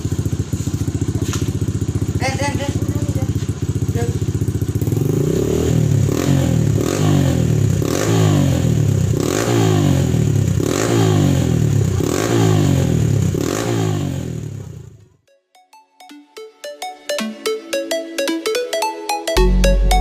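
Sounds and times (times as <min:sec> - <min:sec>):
motorcycle engine revving: 0:00.0 - 0:15.1.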